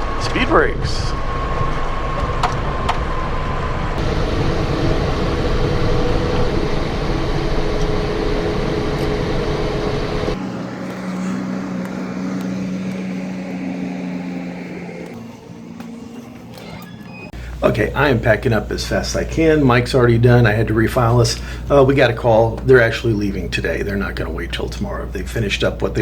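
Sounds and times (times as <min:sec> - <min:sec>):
roar of air and runway: 0:00.0 - 0:17.3
low drone hum: 0:00.0 - 0:26.0
turbofan engines whining: 0:00.0 - 0:26.0.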